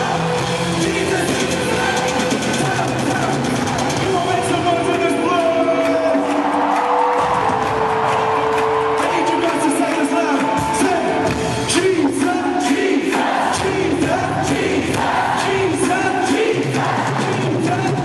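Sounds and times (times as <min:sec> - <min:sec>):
crowd singing along: 0:00.0 - 0:04.0, 0:11.7 - 0:18.0
lead singer singing: 0:00.0 - 0:04.0, 0:09.0 - 0:18.0
steady drum beat: 0:00.0 - 0:06.5, 0:07.2 - 0:18.0
worship band playing: 0:00.0 - 0:18.0.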